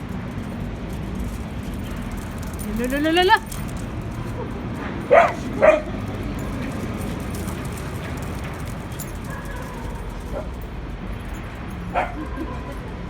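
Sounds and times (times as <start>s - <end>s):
dog barking: 5.1s - 6.0s, 9.2s - 10.6s, 11.9s - 12.8s.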